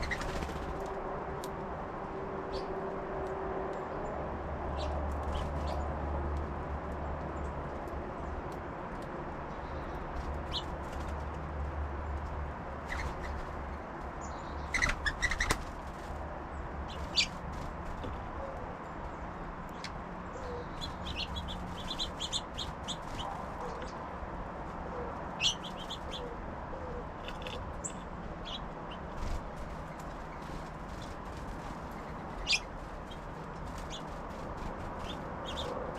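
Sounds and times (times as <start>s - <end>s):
high bird chip calls: 0.0s - 0.4s, 14.2s - 15.6s, 20.4s - 24.0s, 25.4s - 26.4s, 32.0s - 34.1s, 35.0s - 35.9s
bird wing flutters: 0.0s - 1.0s, 29.1s - 35.3s.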